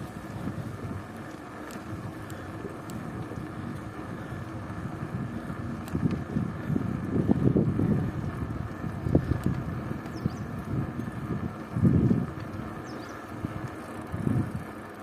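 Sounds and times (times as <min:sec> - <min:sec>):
wind buffeting microphone: 0:00.0 - 0:14.8
faint ticks: 0:00.9 - 0:04.4, 0:05.6 - 0:06.3, 0:08.7 - 0:11.2, 0:12.0 - 0:15.0.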